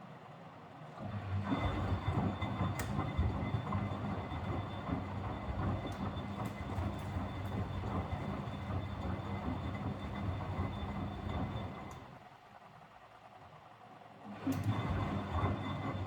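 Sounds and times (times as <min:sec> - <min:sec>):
washing machine drum motor rumbling: 0:01.4 - 0:12.2, 0:14.5 - 0:16.0.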